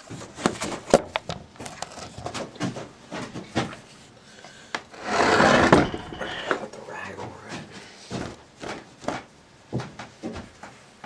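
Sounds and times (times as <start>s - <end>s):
loud rustling noise: 5.0s - 6.5s.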